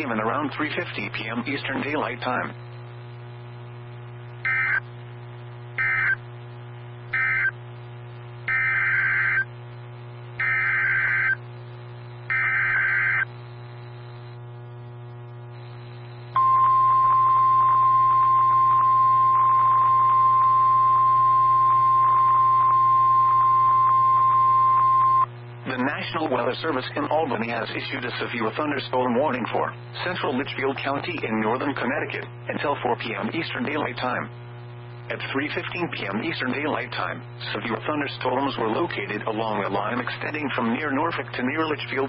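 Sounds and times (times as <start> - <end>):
constant low hum: 0.0 - 42.0
steady warning alarm tone: 4.5 - 4.8, 5.8 - 6.2, 7.2 - 7.6, 8.5 - 9.5, 10.4 - 11.4, 12.3 - 13.3, 16.4 - 25.3
warbling data bursts: 5.8 - 6.2.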